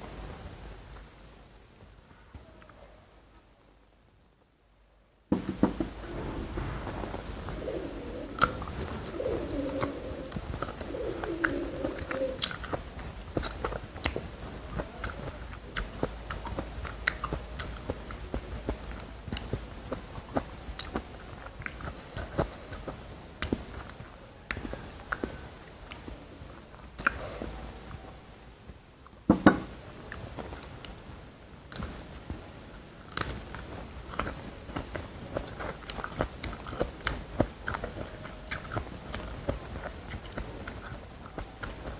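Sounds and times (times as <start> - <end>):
low wavering cooing sound: 6.0 - 12.5
crunchy chewing: 7.5 - 27.6, 31.7 - 41.9.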